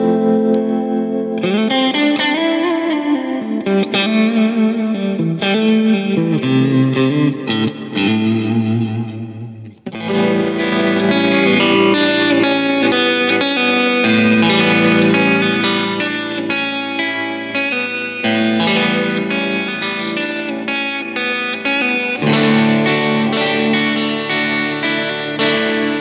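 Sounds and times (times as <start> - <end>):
electric guitar notes and chords: 0.0 - 26.0.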